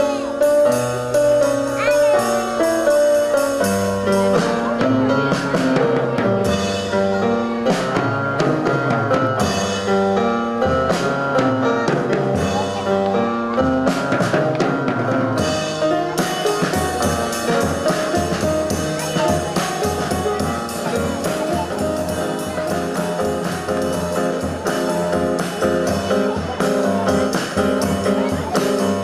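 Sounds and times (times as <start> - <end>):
band music with drums and bass: 0.0 - 29.0.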